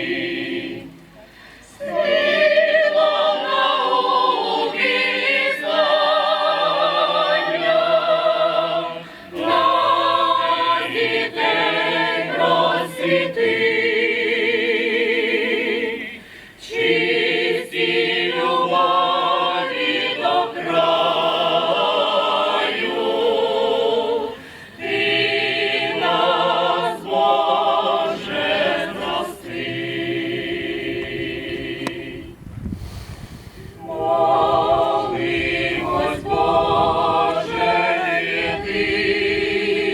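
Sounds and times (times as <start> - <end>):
choir singing: 0.0 - 1.1, 1.7 - 32.4, 33.8 - 39.9
singers breathing: 1.1 - 1.8, 9.0 - 9.4, 16.2 - 16.6, 24.3 - 24.8, 32.6 - 33.8.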